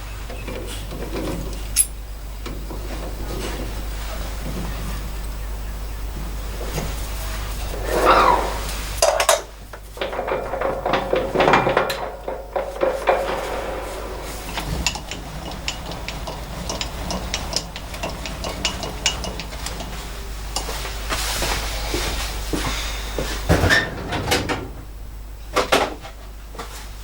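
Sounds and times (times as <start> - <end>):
metal scrape: 7.2 - 22.1
metal tools clinking and tapping: 10.0 - 21.6.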